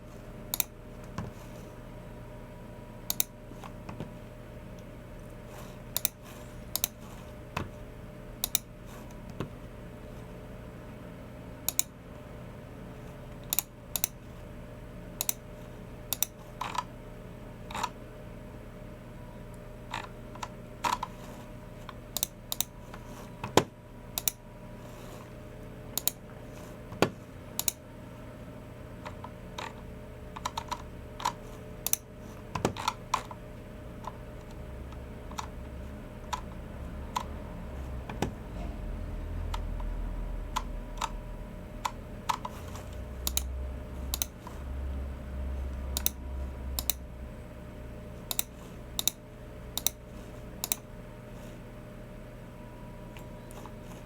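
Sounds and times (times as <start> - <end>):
keyboard typing: 30.4 - 32.0.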